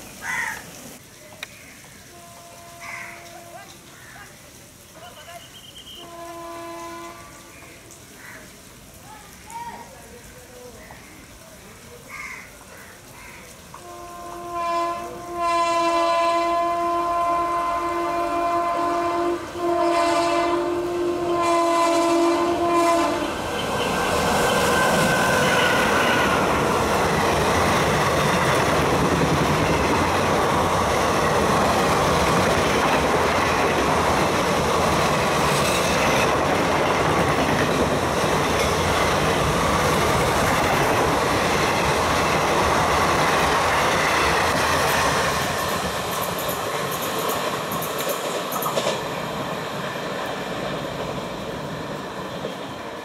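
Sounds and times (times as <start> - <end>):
locomotive horn blast: 2.1 - 3.7, 5.3 - 7.5, 13.8 - 26.8
train coaches rumbling and clacking: 13.7 - 53.0.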